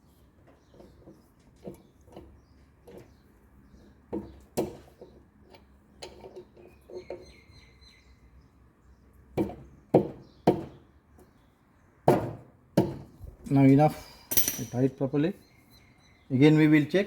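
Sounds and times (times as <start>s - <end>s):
knocks and clicks of hand tools: 4.1s - 6.7s, 9.4s - 10.8s, 12.0s - 13.2s.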